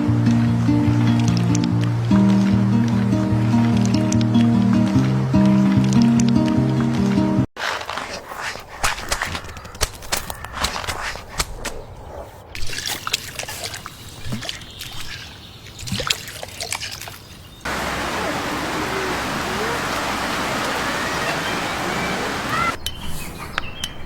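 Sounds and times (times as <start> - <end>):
trickle of running water: 12.7 - 22.8
faint rising whistles: 17.7 - 23.0.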